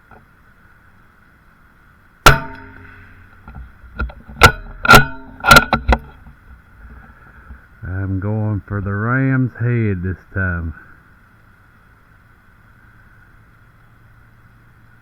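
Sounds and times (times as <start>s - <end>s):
rifle shot with echo: 2.3s - 3.3s
rifle action metallic clacks: 2.3s - 6.1s.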